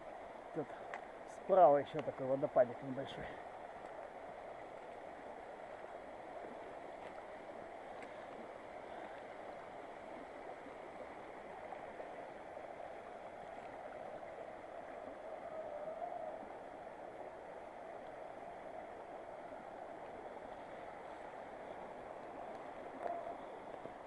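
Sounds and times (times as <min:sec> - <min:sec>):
waterfall rushing and splashing: 0:16.2 - 0:24.0.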